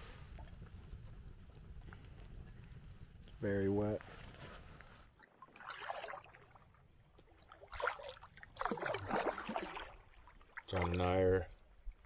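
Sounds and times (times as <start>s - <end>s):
canoe paddle splashing: 5.2s - 11.0s.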